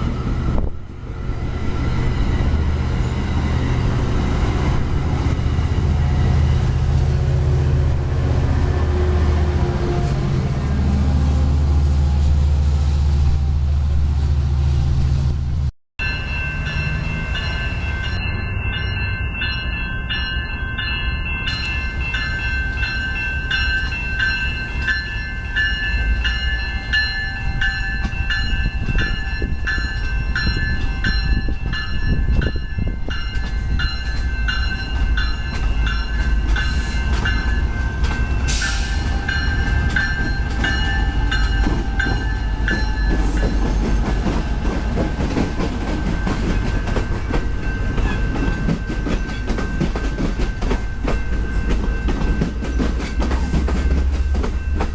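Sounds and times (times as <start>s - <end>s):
deep locomotive rumble: 0.0s - 54.9s
high ringing wheel whine: 16.0s - 44.1s.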